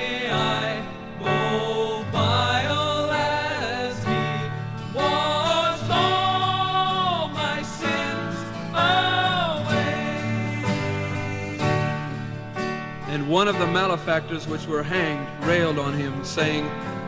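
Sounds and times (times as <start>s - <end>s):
voices singing: 0.0s - 12.6s.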